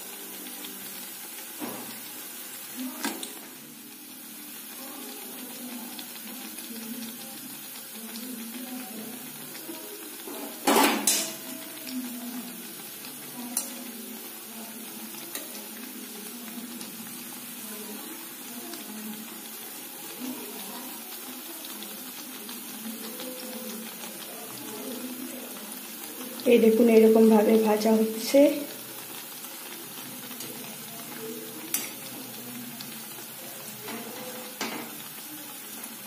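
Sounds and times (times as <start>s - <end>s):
food sizzling in oil: 0.0s - 36.0s
metal spoon clattering against pan: 10.6s - 11.4s.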